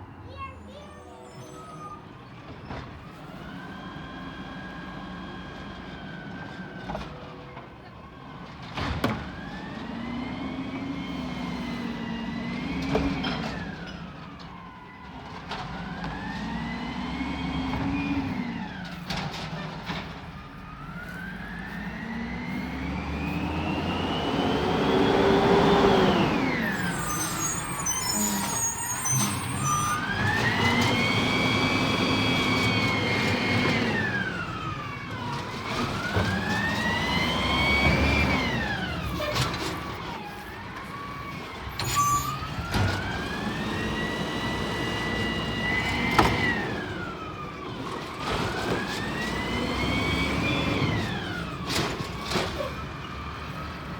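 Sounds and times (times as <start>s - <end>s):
diesel truck engine revving: 21.1s - 41.7s, 42.5s - 53.9s.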